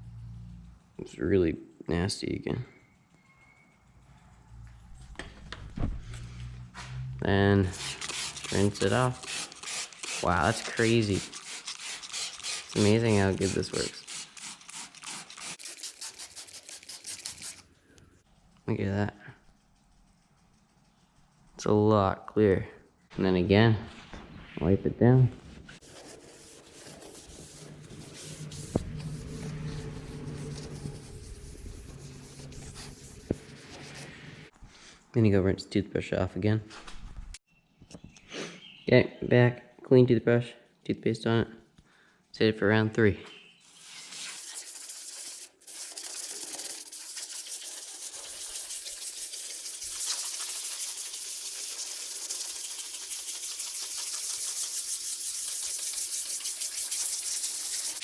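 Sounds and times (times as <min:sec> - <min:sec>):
cloth rubbing plastic lens: 0:07.7 - 0:17.7, 0:25.8 - 0:34.5
toothbrush scrubbing plastic: 0:07.7 - 0:17.7, 0:25.8 - 0:34.5, 0:44.4 - 0:58.0.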